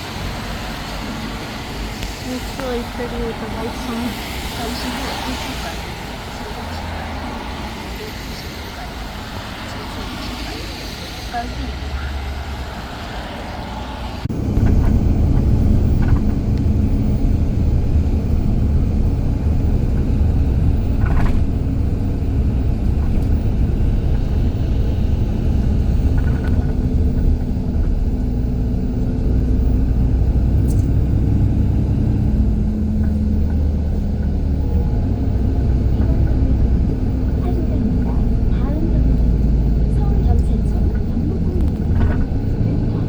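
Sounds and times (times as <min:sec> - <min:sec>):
low hum: 0:00.0 - 0:43.0
vehicle engine and road noise: 0:00.0 - 0:43.0.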